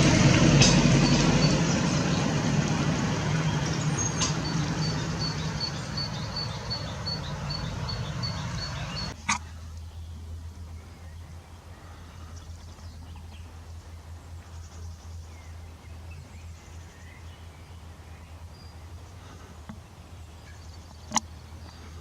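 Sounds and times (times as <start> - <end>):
low hum: 0.0 - 22.0
motor vehicle running: 0.0 - 22.0
faint high chirp: 3.7 - 9.2.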